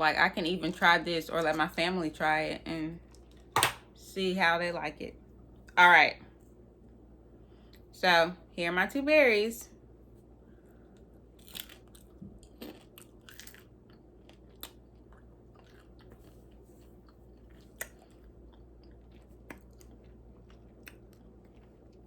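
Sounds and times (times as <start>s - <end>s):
person chewing and crunching: 10.5s - 22.0s.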